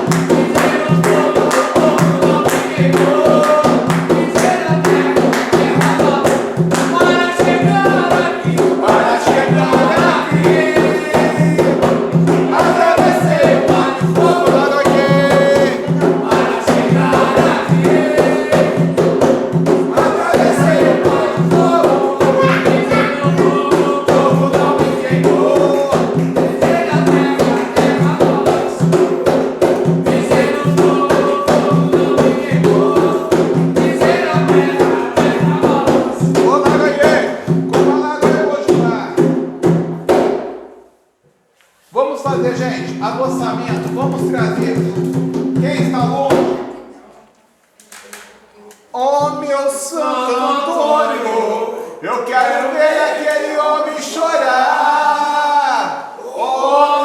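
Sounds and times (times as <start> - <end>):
group of voices chanting: 0.0 - 37.5, 49.7 - 57.0
fast hand drumming: 0.0 - 40.6, 42.3 - 46.7.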